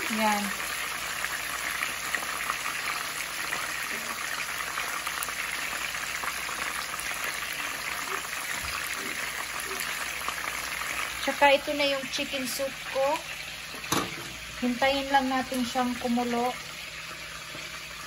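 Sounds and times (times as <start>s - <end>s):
chicken sizzling in hot oil: 0.0s - 18.0s.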